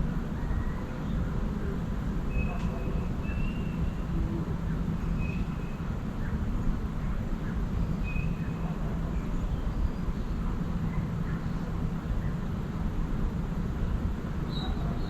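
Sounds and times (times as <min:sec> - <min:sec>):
bird whistling calls: 0:02.3 - 0:03.9.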